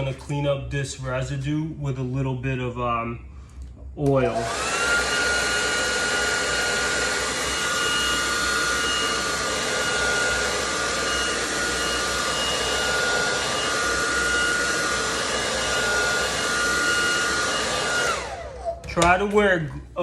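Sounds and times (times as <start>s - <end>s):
hot-air blower running: 4.0s - 19.4s.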